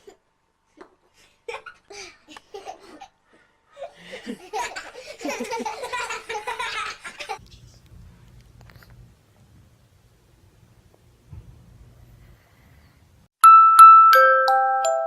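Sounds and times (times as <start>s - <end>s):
hearty laughing: 3.9s - 7.4s.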